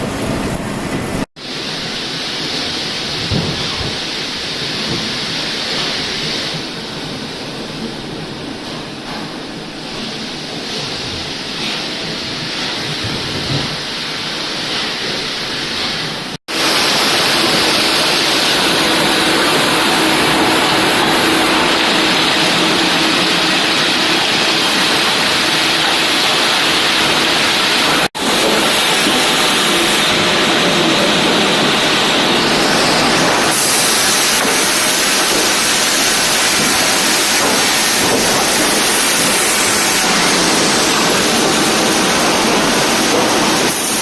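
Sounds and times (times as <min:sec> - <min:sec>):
sawmill machinery rushing: 0:16.5 - 0:44.0
steady machine hum: 0:16.5 - 0:44.0.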